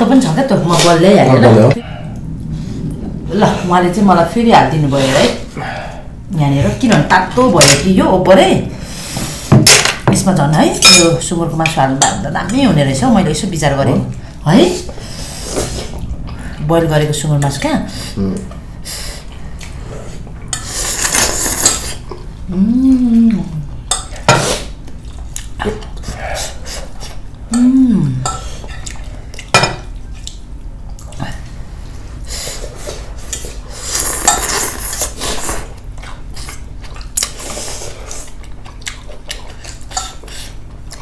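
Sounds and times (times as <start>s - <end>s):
spoon and chopsticks clinking bowl: 10.8s - 11.2s
person humming mm: 22.5s - 23.7s, 27.5s - 28.4s.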